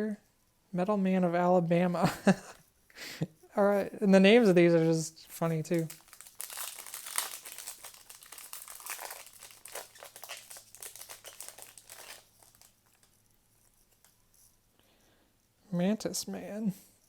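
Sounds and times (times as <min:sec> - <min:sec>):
foil wrapper crinkling: 0:04.3 - 0:13.1.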